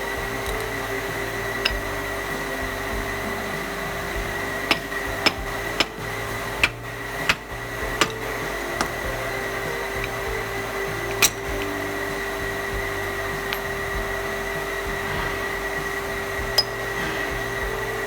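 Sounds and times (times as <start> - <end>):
workshop hum: 0.0 - 18.0
hammer tapping on metal: 1.5 - 9.2.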